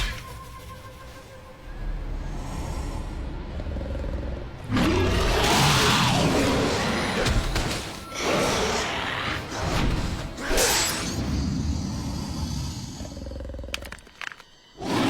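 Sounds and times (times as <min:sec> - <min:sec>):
film score music: 0:00.0 - 0:15.0
monster growls and roars: 0:02.1 - 0:14.0.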